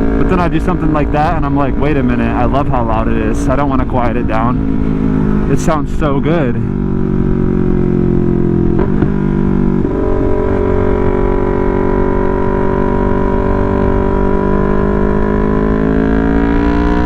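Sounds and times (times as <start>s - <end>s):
motorcycle engine and loud exhaust: 0.0s - 17.0s.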